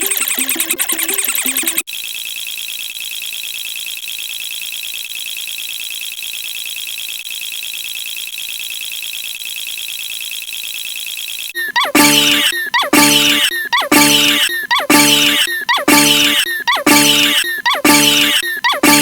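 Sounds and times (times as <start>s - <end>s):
electronic music: 11.6s - 19.0s
pulsing electronic buzzer: 11.6s - 19.0s.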